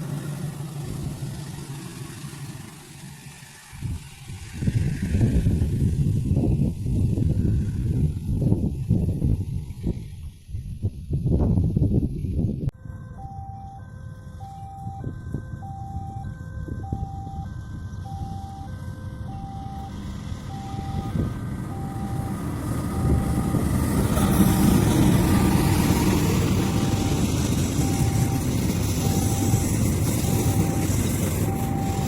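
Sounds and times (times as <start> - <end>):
approaching train rumble: 0.0 - 13.3, 14.2 - 32.0
level crossing alarm tone: 12.8 - 32.0.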